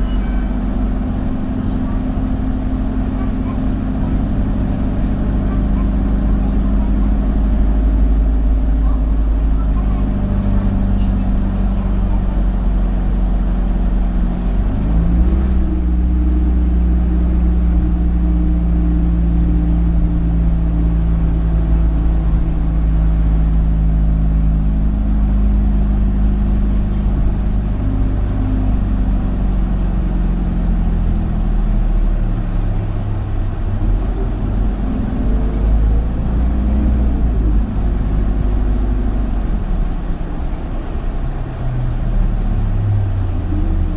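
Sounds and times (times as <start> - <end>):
bus diesel engine: 0.0 - 43.9.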